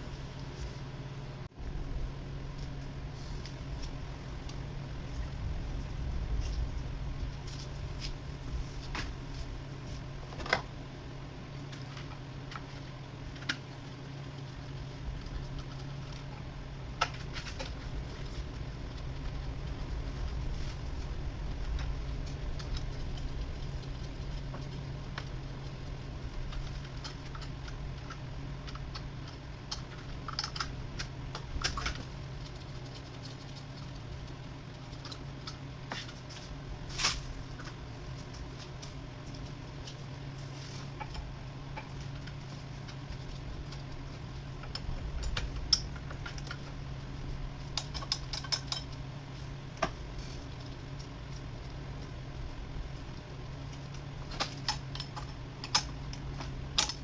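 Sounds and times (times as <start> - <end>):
steady low hum: 0.0 - 57.0
tools clicking and clinking: 47.8 - 49.0.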